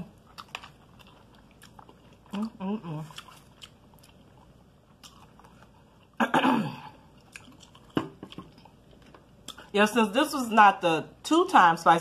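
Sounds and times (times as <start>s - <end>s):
person chewing: 0.0s - 6.2s, 6.9s - 9.7s.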